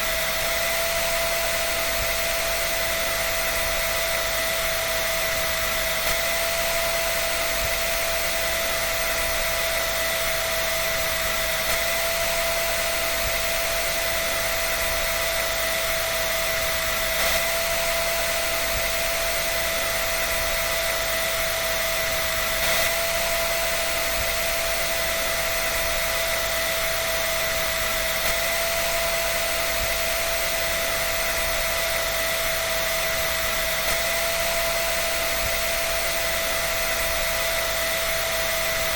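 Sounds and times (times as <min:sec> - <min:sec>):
dryer running with motor whine: 0:00.0 - 0:38.9.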